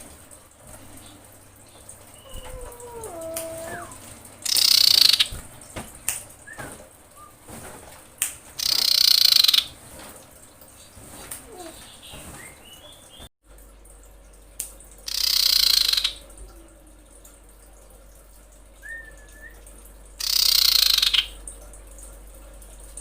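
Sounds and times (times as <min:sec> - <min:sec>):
bird harsh hissing rasps: 0:02.2 - 0:05.3, 0:08.6 - 0:09.6, 0:15.1 - 0:16.2, 0:20.2 - 0:21.3
faint short whistled notes: 0:18.8 - 0:19.6.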